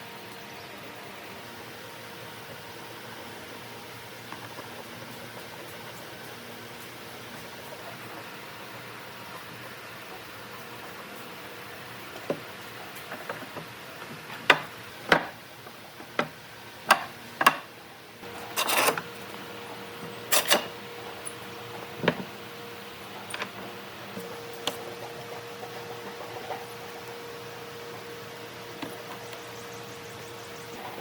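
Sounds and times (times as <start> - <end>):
faint steady hum: 0.0 - 31.0
wooden workpieces knocking: 16.0 - 17.7
scraping: 18.3 - 19.1.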